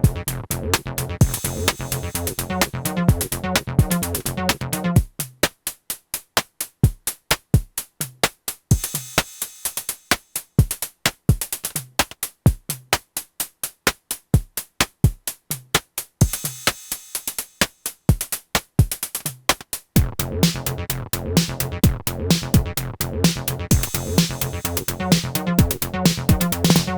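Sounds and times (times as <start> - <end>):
synth bass line: 0.0 - 5.0, 20.0 - 26.9
drum machine percussion: 0.0 - 26.9.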